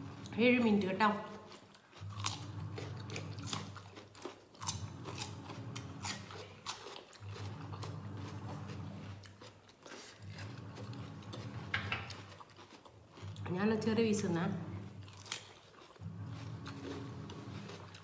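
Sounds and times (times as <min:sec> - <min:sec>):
cucumber crunching: 0:01.1 - 0:13.6, 0:14.9 - 0:18.0.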